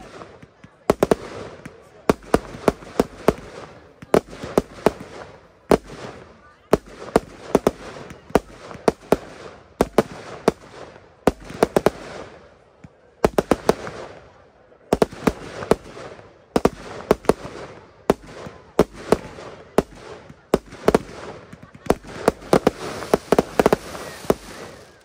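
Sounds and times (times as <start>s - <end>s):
fireworks bangs: 0.0s - 25.0s
fireworks hiss: 21.9s - 25.0s.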